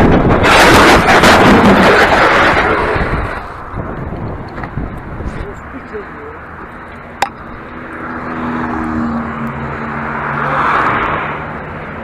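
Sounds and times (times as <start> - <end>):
vehicle driving past: 7.0 - 11.7.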